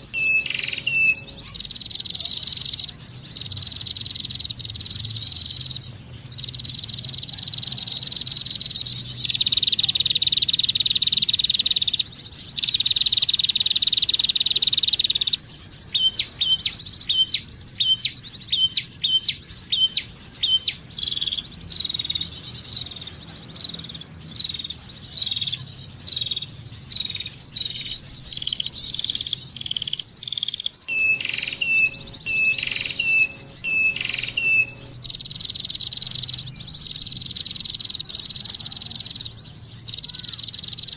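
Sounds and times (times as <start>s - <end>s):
falling whistled bird notes: 0.0s - 2.9s, 27.0s - 39.3s
bird buzzing trills: 0.0s - 40.9s.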